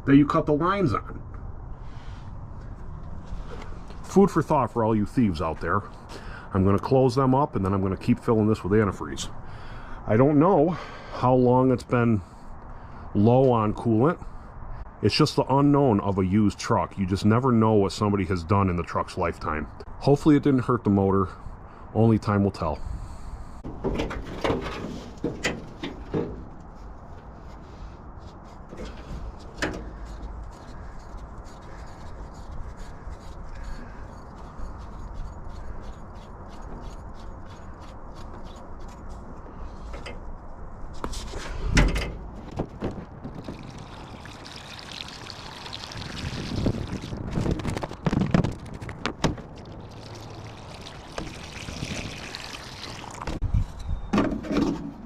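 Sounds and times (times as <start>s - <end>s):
handling knocks and clicks: 23.6s - 26.8s, 28.7s - 30.4s, 47.6s - 49.7s
liquid pouring and trickling: 43.2s - 48.0s, 48.6s - 53.4s.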